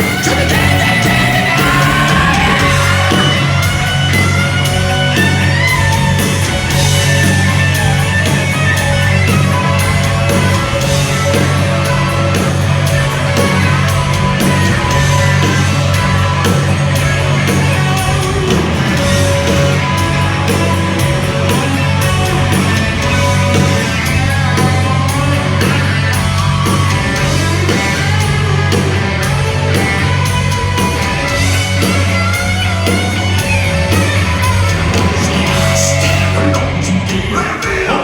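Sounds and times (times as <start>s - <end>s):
person singing: 0.0s - 3.8s
distorted electric guitars: 0.0s - 38.0s
heavy bass: 0.0s - 38.0s
steady drum beat: 0.0s - 38.0s.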